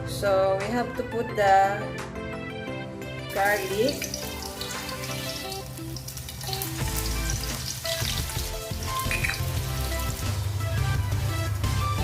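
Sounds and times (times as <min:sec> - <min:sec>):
garlic sizzling in oil: 0:03.3 - 0:12.0.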